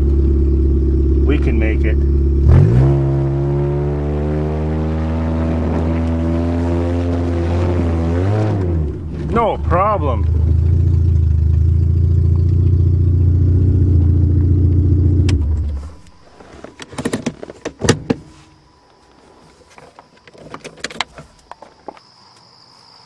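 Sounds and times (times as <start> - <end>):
car engine running: 0.0 - 16.7
high cricket trill: 0.0 - 23.0.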